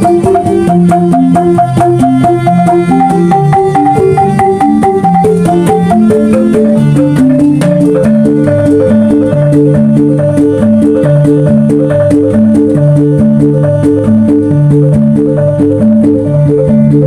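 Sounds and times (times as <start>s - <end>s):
bamboo instrument ensemble: 0.0s - 17.0s
struck percussion beat: 0.0s - 17.0s.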